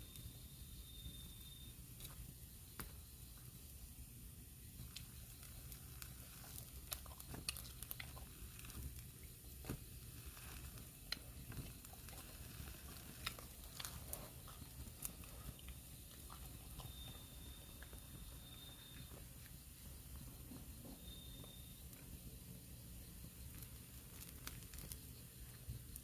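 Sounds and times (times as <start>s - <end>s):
faint high whistle: 0.0s - 1.9s, 16.7s - 19.4s, 20.3s - 22.2s
firewood crackling and popping: 4.6s - 22.1s, 23.2s - 26.0s.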